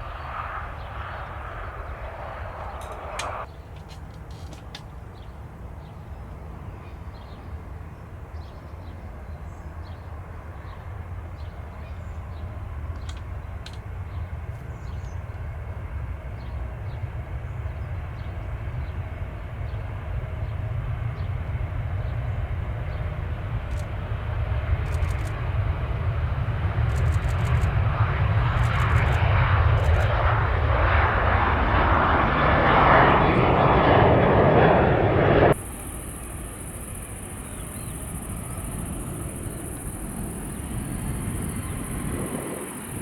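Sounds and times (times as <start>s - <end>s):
jet engines rumbling: 0.0s - 6.7s, 7.4s - 43.0s.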